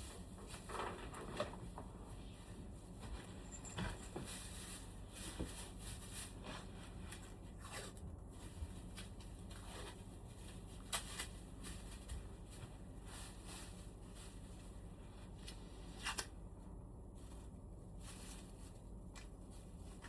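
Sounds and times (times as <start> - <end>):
faint clicks and scrapes: 0.0 - 14.7
low steady hum: 0.0 - 20.0.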